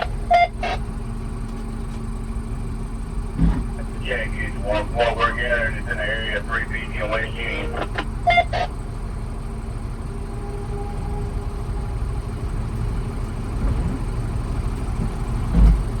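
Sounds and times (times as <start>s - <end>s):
low rumbling noise: 3.4s - 16.0s
brief voice: 3.8s - 8.7s.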